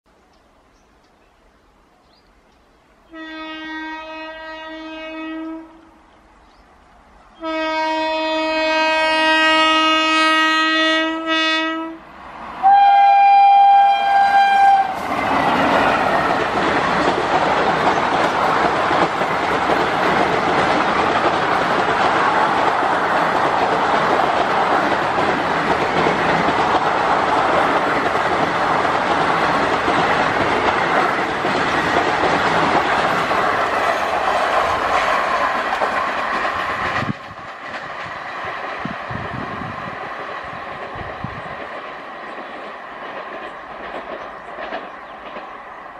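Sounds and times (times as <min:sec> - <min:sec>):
locomotive horn blasts: 0:03.1 - 0:06.0, 0:07.4 - 0:15.0
train wheels clattering on rails: 0:14.1 - 0:45.9.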